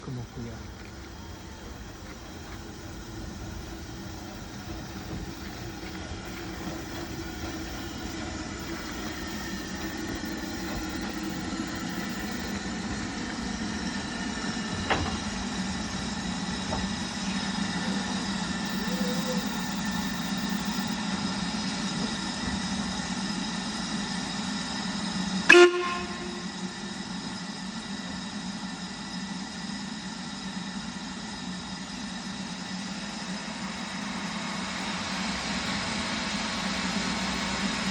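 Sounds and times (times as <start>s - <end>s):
steam train rumbling and hissing: 0.0s - 37.9s
loud train whistle toot: 25.4s - 27.1s.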